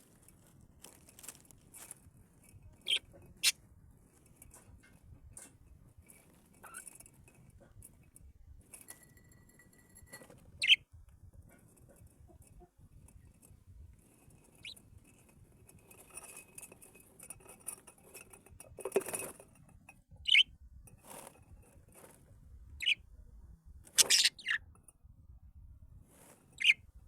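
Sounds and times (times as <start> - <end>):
faint ticks and rustles: 0.0 - 23.0, 25.8 - 27.0
cage birds calling: 2.8 - 3.6, 10.6 - 10.8, 14.6 - 14.8, 20.2 - 20.5, 22.8 - 23.0, 23.9 - 24.7, 26.5 - 26.8.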